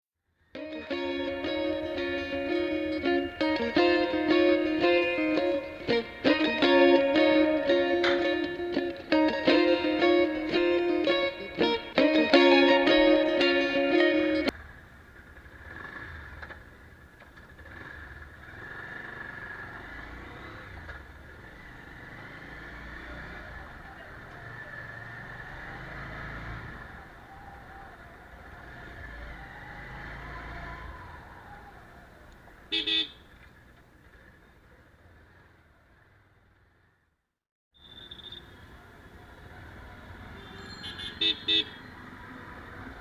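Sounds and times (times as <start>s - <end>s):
road traffic passing: 0.4s - 43.0s
car horn toot: 32.7s - 33.3s, 40.4s - 41.8s.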